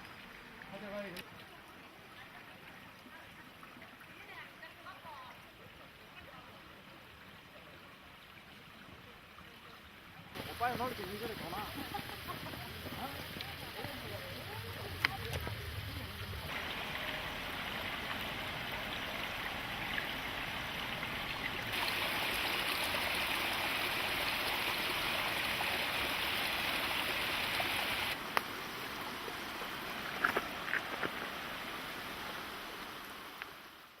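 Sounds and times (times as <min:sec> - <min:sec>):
stream rushing over rock: 0:10.4 - 0:34.0.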